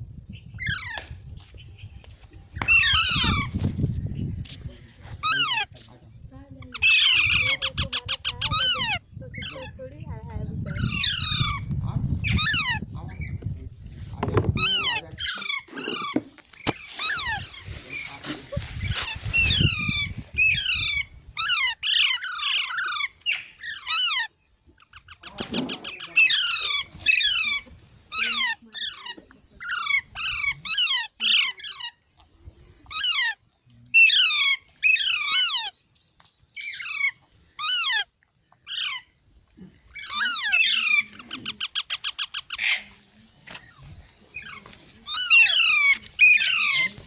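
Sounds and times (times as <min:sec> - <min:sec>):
parrots squawking: 0:00.6 - 0:01.0, 0:02.6 - 0:03.6, 0:05.2 - 0:05.8, 0:06.6 - 0:09.9, 0:10.6 - 0:13.4, 0:14.2 - 0:32.0, 0:32.8 - 0:33.4, 0:34.0 - 0:35.7, 0:36.6 - 0:39.2, 0:39.8 - 0:43.0, 0:43.6 - 0:47.0.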